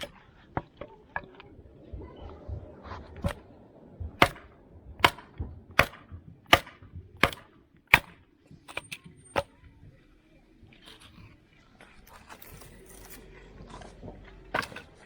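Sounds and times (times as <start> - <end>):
wood chopping strikes: 3.2 - 8.8.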